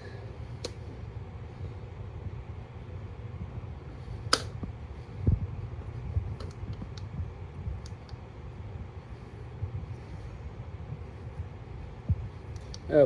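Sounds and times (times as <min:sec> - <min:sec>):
low steady hum: 0:00.0 - 0:13.0
sharp click: 0:04.3 - 0:04.6.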